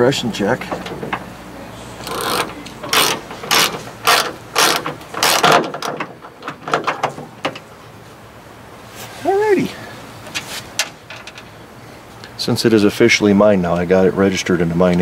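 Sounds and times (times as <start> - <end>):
ratchet wrench clicking: 2.0 - 5.6.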